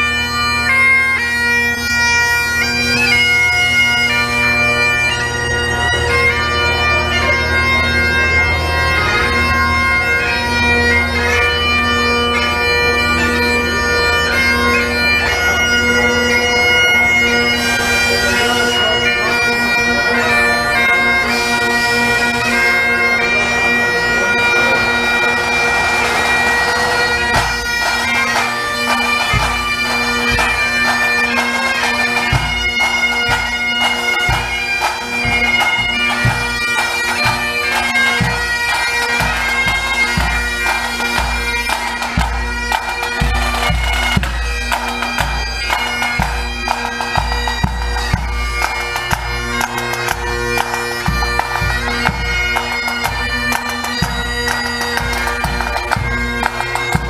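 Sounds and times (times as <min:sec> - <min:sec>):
bagpipes playing melody: 0:00.0 - 0:57.0
drums beating: 0:25.6 - 0:57.0.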